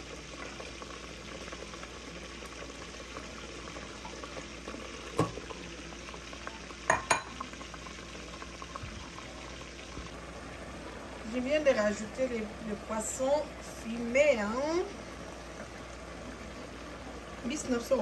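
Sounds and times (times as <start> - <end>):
sizzling in oil: 0.0 - 18.0.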